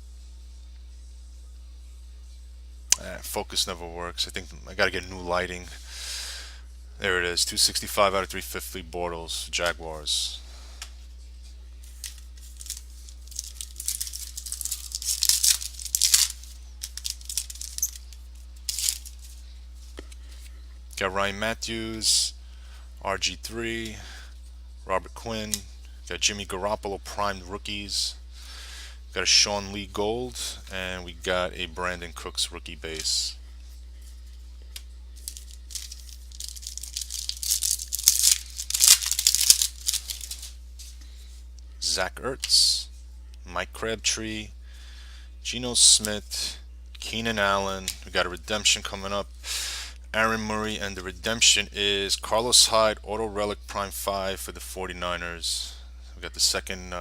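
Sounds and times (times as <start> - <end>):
foil wrapper tearing and crinkling: 11.9 - 18.1, 18.7 - 19.3, 35.2 - 40.5.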